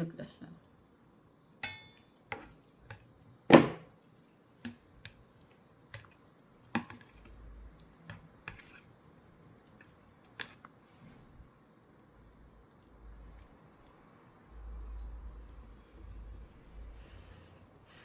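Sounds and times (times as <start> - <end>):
utensils clinking against a bowl: 1.6 - 3.0.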